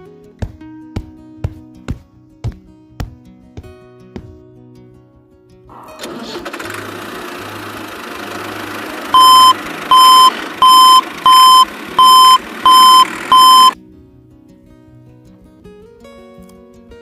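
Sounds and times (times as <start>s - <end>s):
quiet music: 0.0s - 6.2s, 13.4s - 17.0s
engine running: 5.7s - 13.8s
loud electronic beeps: 9.1s - 13.8s.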